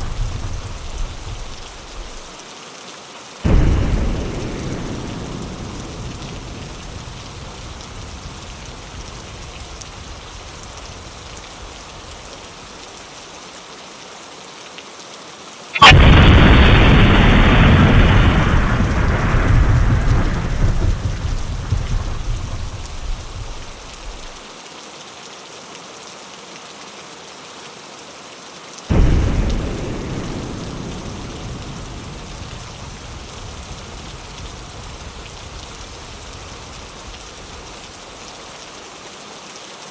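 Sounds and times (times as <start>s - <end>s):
thunder rumbling: 0.0s - 2.4s, 3.4s - 12.8s, 15.8s - 24.4s, 28.9s - 38.7s
rain on a window: 0.0s - 39.9s.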